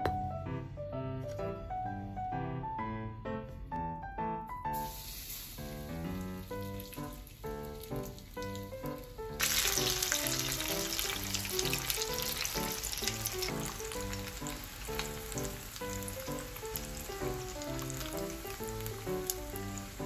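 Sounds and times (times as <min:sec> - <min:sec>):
background music: 0:00.0 - 0:20.0
chicken frying in hot oil: 0:04.7 - 0:20.0.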